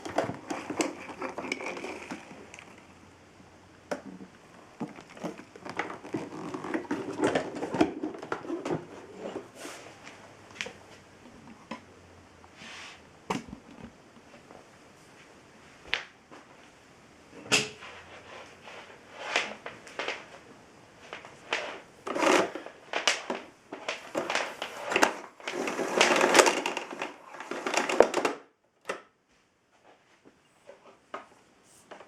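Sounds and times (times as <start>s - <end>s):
scraping and rattling: 0.0s - 3.0s, 21.0s - 28.3s.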